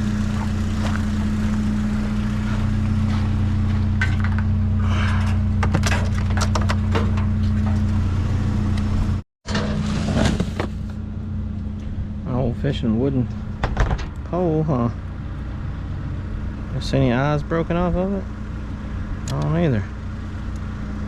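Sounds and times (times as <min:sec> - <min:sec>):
vehicle engine idling: 0:00.0 - 0:09.2, 0:10.4 - 0:21.0
junk clattering and scraping: 0:00.1 - 0:08.3, 0:09.4 - 0:11.0, 0:13.2 - 0:14.3.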